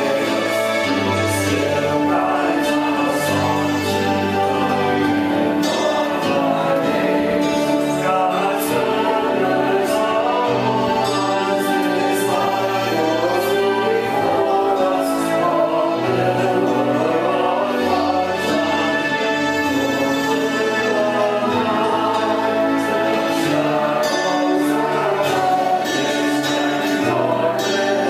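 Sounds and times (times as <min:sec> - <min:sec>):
group singing worship song: 0:00.0 - 0:28.0.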